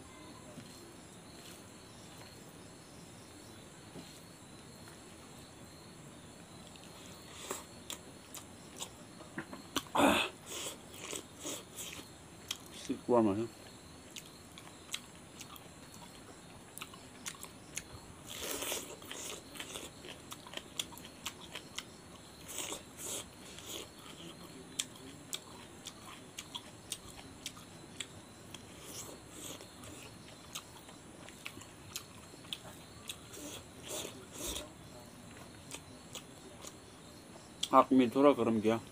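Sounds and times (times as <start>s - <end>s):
man chewing with mouth smacks: 6.6s - 12.9s, 13.6s - 36.8s
food crunching: 10.5s - 13.0s, 14.1s - 36.8s.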